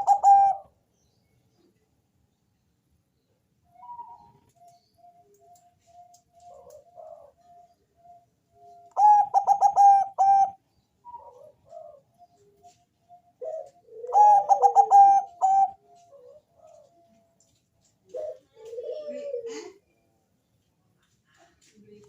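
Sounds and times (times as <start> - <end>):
dove cooing: 0.0 - 0.7, 3.8 - 19.8.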